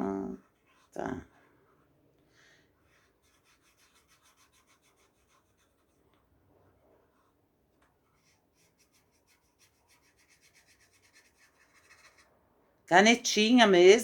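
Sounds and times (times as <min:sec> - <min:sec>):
marker scratching on cardboard: 0:00.4 - 0:01.0, 0:02.8 - 0:06.3, 0:07.0 - 0:12.3.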